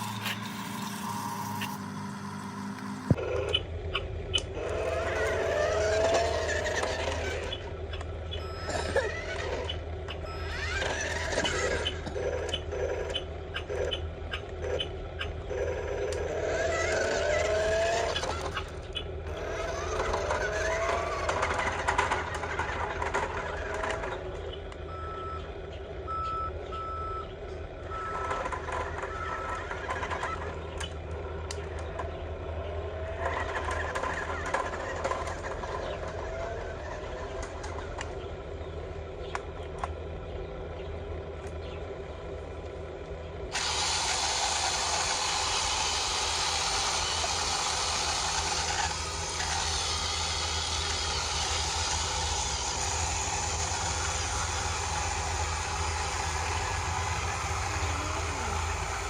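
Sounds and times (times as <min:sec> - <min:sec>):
electric motors whining: 0:00.0 - 0:59.0
scattered clicks: 0:02.7 - 0:17.4
short beeps: 0:08.4 - 0:09.0
steady low hum: 0:33.8 - 0:59.0.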